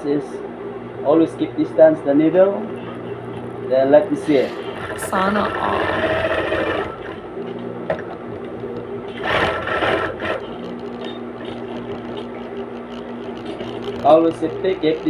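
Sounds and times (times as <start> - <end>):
sewing machine running: 4.2 - 7.2, 9.1 - 15.0.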